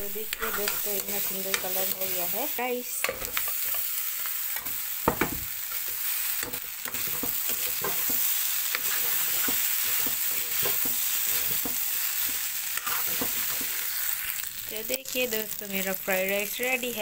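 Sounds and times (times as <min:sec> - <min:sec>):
rice sizzling in oil: 0:00.0 - 0:17.0
spatula scraping and knocking pan: 0:00.3 - 0:02.2, 0:04.5 - 0:13.9.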